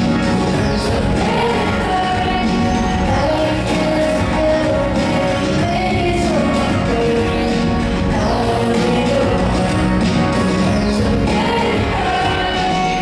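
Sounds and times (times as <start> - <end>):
electronic pop music: 0.0 - 13.0
woman singing: 0.0 - 13.0.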